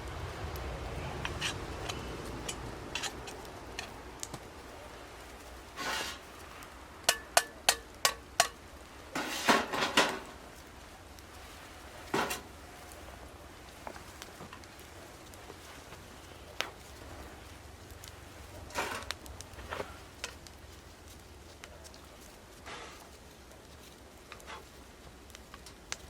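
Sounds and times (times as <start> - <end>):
metal utensils clinking: 1.2 - 4.1, 7.0 - 10.3.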